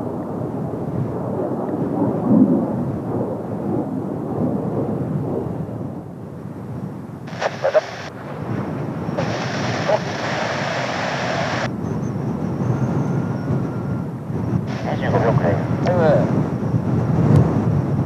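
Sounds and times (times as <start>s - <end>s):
wind buffeting microphone: 0.0s - 18.0s
jet aircraft rumble: 7.0s - 18.0s
short bursts of hiss: 7.3s - 8.1s, 9.2s - 11.7s.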